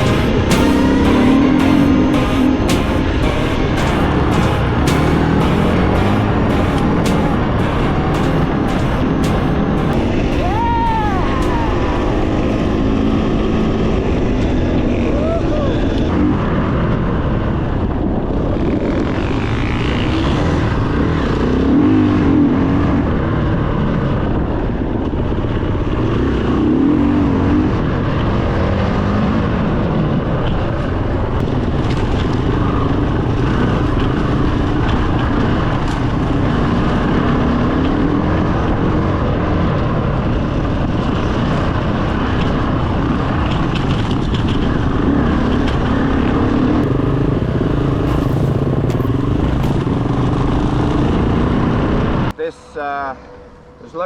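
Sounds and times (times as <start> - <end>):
dirt bike engine revving: 0.0 - 14.4, 45.4 - 51.9.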